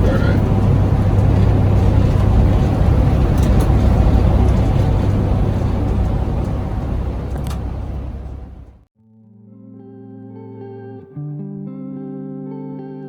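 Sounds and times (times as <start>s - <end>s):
bus engine and road rumble: 0.0s - 8.9s.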